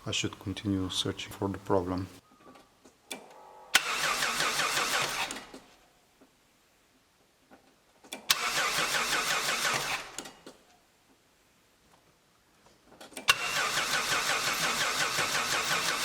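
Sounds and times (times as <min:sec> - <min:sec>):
starter motor cranking engine: 0:03.8 - 0:05.6, 0:08.2 - 0:10.5, 0:13.2 - 0:16.0.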